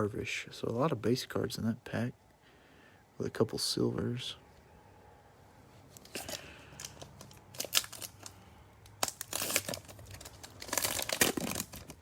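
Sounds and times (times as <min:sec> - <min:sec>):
plastic wrapper tearing and crinkling: 0:06.0 - 0:12.0.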